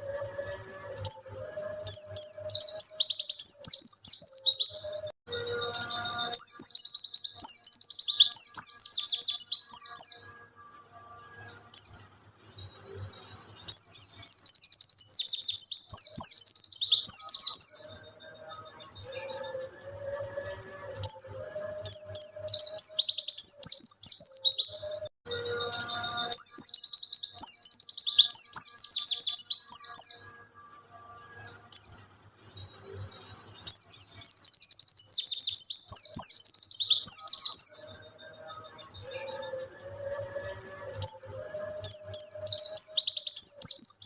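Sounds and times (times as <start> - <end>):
white-eye bird twittering song: 0.6 - 10.3, 11.0 - 19.7, 20.6 - 30.4, 31.0 - 44.0.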